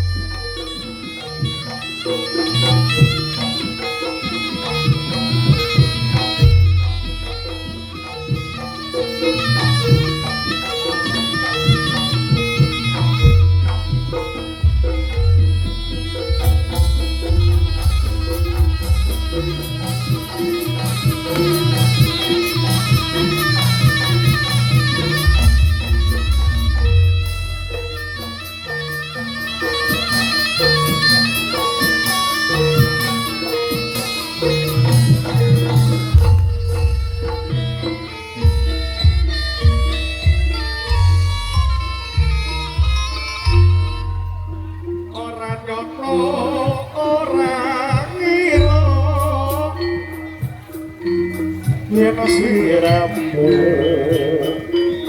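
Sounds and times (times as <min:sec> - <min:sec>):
drums: 0:00.0 - 0:55.0
pitched percussion: 0:00.0 - 0:55.0
shrill double-reed wind instrument: 0:00.0 - 0:55.0
person singing with vibrato: 0:45.1 - 0:50.4, 0:51.2 - 0:55.0.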